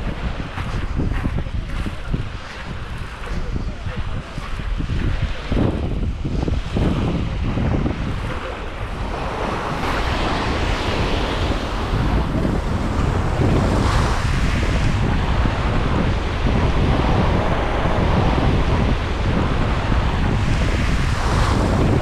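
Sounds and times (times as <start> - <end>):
waves washing onto beach: 0.0 - 22.0
wind buffeting microphone: 0.0 - 22.0.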